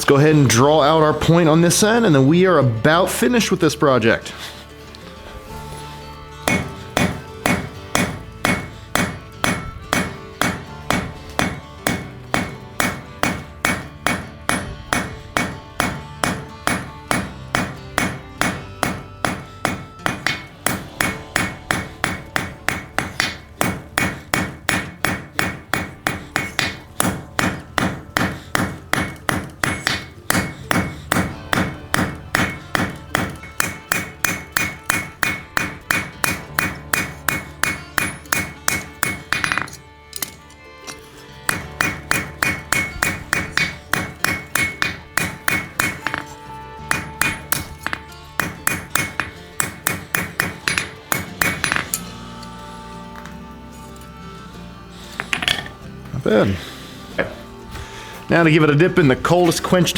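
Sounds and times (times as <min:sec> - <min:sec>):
hammer striking steel on anvil: 0:06.4 - 0:56.8.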